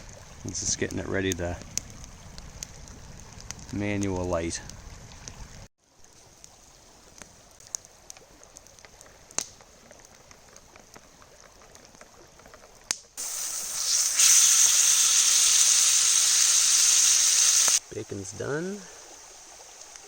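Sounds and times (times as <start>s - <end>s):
faint crackling with small pops: 0.0s - 13.2s
bacon sizzling in a pan: 13.2s - 17.8s.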